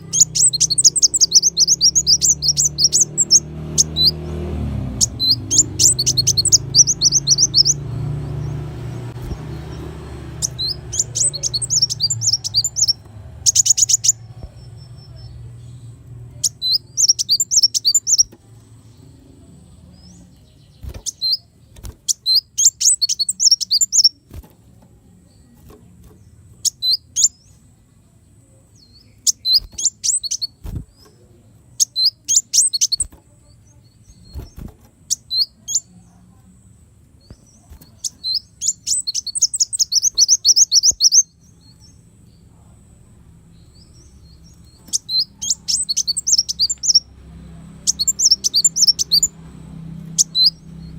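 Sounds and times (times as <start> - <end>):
bird chirping high and thin: 0.0 - 4.3, 4.9 - 15.4, 16.3 - 18.4, 20.8 - 24.3, 26.6 - 27.6, 28.8 - 31.0, 31.8 - 33.2, 37.2 - 42.0, 43.7 - 47.1, 47.8 - 49.4, 50.0 - 50.9
bird trill: 0.0 - 18.4, 20.6 - 24.3, 26.6 - 27.6, 28.8 - 30.9, 31.8 - 36.0, 37.2 - 42.4, 43.6 - 47.2, 47.8 - 50.9.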